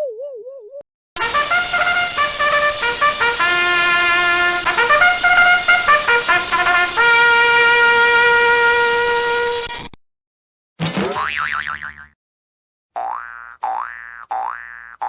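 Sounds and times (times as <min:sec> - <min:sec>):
trumpet playing a tune: 0:01.2 - 0:09.7.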